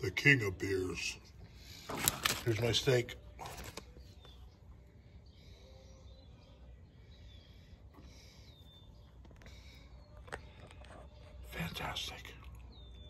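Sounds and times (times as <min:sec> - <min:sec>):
faint bird chirps: 0:03.2 - 0:13.0.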